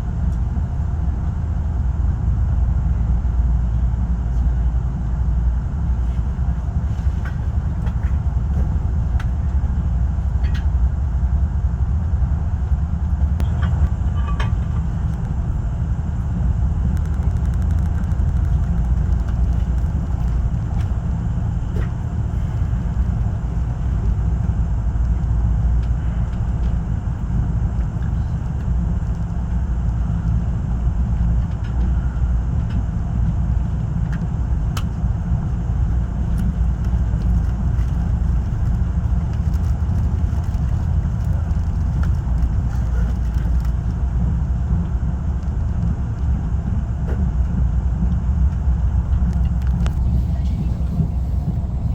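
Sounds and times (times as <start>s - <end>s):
train rumbling: 0.0s - 51.9s
faint clicks: 16.9s - 20.9s.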